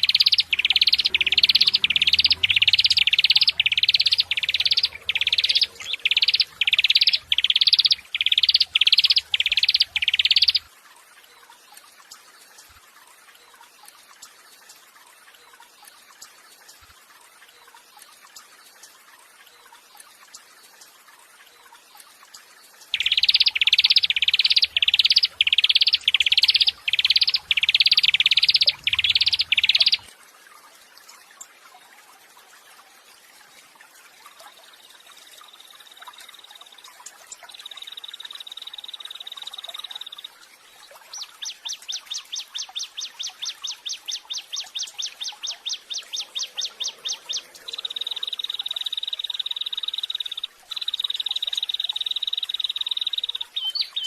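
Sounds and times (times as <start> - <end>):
high bird trill: 0.0 - 10.6, 23.0 - 30.1
songbird rising notes: 0.0 - 10.6.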